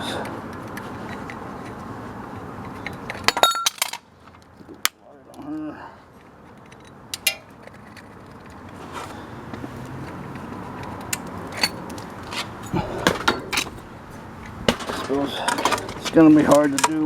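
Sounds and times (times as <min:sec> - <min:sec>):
metallic clinks and knocks: 0:02.6 - 0:04.0, 0:10.3 - 0:12.0.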